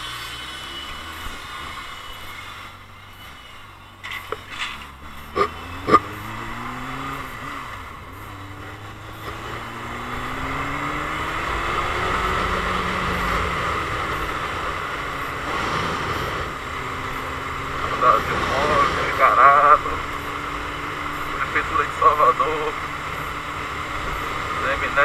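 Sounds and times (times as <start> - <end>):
motorcycle engine accelerating: 0.0 - 25.0
wind rush: 11.4 - 20.0.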